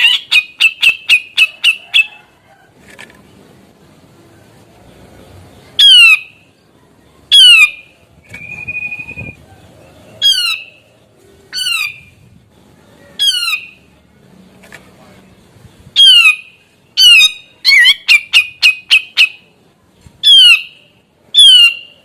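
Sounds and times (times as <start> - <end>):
bird harsh squawks: 0.0 - 2.1, 5.8 - 6.4, 7.3 - 7.9, 10.2 - 10.8, 11.5 - 12.1, 13.2 - 13.8, 16.0 - 19.5, 20.2 - 22.0
bird held whistle: 7.3 - 9.4, 20.2 - 20.8, 21.4 - 22.0.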